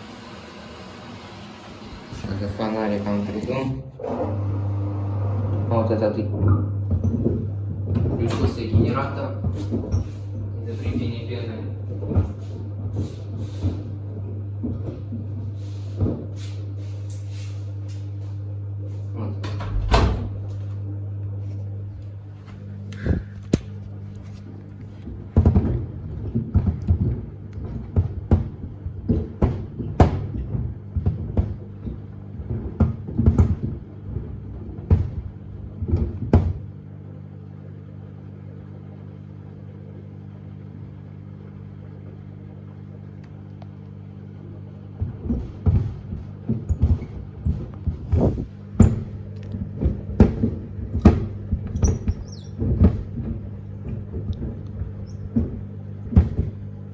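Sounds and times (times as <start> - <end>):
washing machine hum: 0.0 - 56.9
shoes thumping in washing machine drum: 25.0 - 36.7, 44.9 - 56.7.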